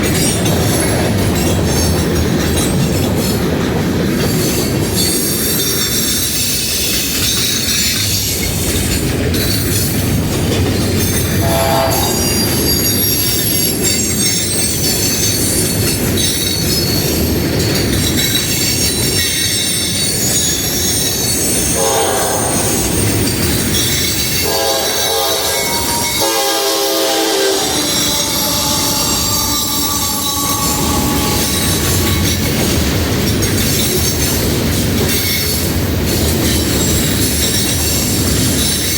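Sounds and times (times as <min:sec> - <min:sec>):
wheel-on-rail noise: 0:00.0 - 0:38.9
train horn note: 0:11.4 - 0:12.6, 0:21.8 - 0:22.9, 0:24.4 - 0:32.6.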